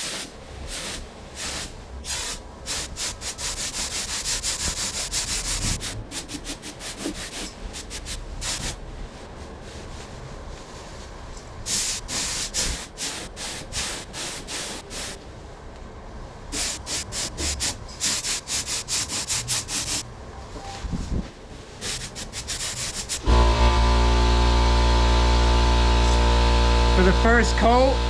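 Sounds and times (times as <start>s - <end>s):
paint spray gun hissing: 2.1s - 5.8s, 11.7s - 15.2s, 16.5s - 20.0s, 21.9s - 28.0s
loud steady hum: 23.1s - 28.0s.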